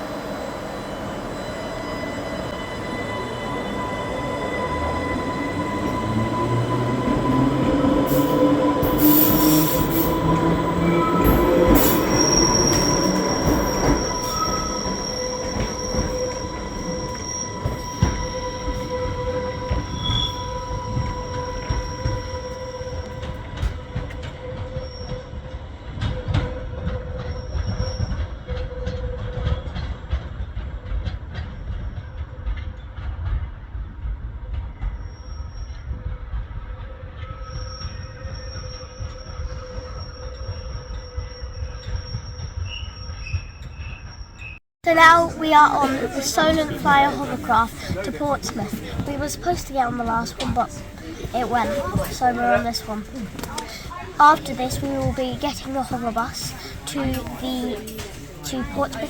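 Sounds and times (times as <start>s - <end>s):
high-pitched wheel squeal: 0.1s - 29.0s
wheels clicking on track: 45.0s - 59.0s.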